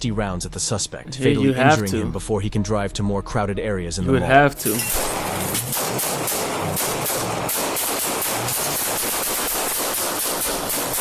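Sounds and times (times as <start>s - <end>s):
rapid gunfire: 5.6s - 11.0s.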